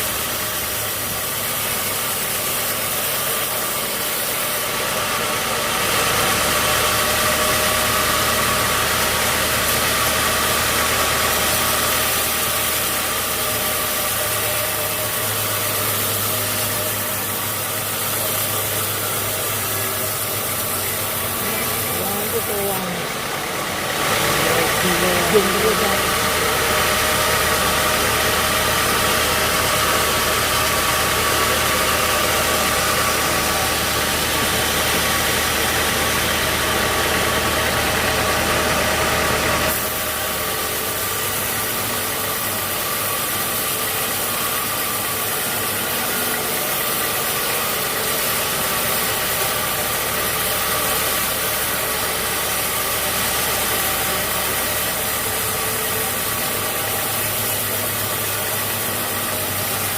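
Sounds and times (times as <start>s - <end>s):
sawmill motor hum: 0.0s - 59.9s
steady machinery hiss: 0.0s - 59.9s.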